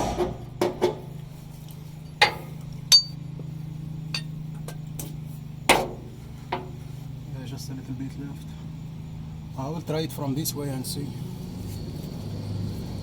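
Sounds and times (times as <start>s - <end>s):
steady low hum: 0.0s - 13.0s
metallic clinks of tools: 2.2s - 3.2s, 4.1s - 4.4s.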